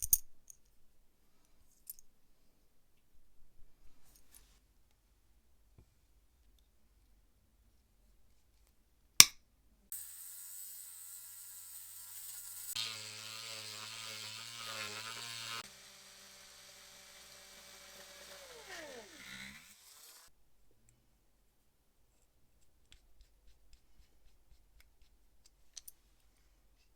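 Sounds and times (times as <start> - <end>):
small electric motor whirring: 9.9 - 20.3.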